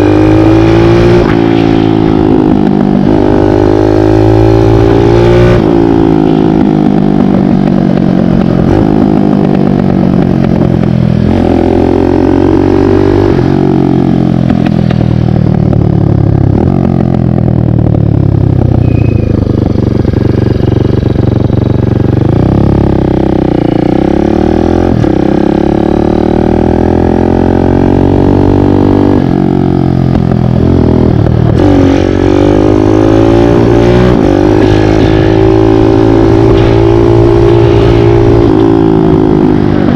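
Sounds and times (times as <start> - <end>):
dirt bike engine revving: 31.5 - 39.9.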